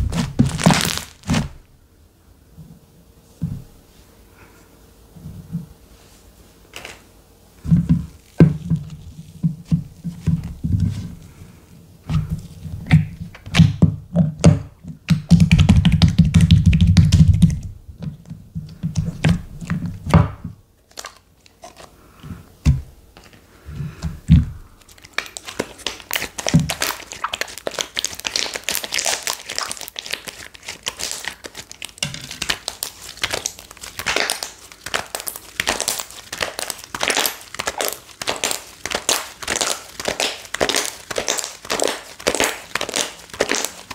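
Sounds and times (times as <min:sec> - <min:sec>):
slime crackling pops: 0:00.0 - 0:01.5, 0:25.1 - 0:43.9
slime squishing: 0:00.0 - 0:01.6, 0:22.6 - 0:43.9.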